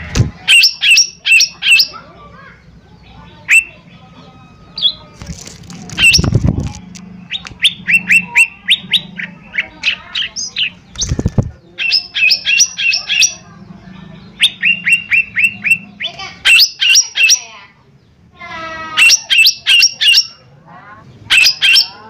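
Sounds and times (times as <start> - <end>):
low thumps: 0.0 - 0.4
bird chirping rapidly: 0.4 - 2.0, 2.7 - 5.2, 5.9 - 6.6, 7.2 - 17.7, 18.8 - 20.4, 21.2 - 22.0.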